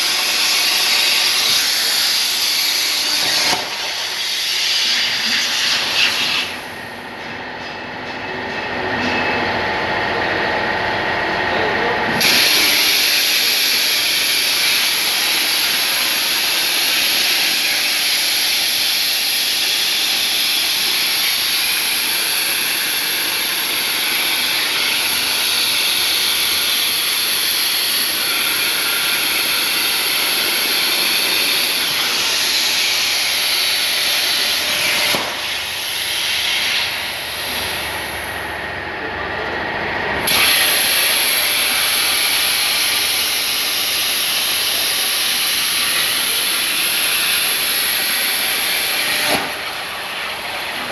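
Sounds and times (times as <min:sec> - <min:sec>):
plasma torch hissing: 0:00.0 - 0:06.8, 0:12.2 - 0:38.4, 0:40.3 - 0:50.8.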